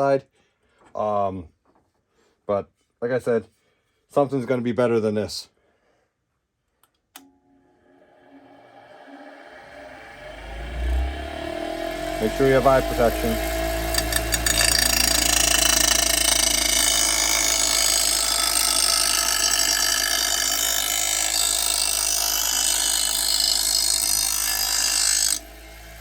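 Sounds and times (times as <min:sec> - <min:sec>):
grinder wheel grinding steel: 0:07.8 - 0:26.0.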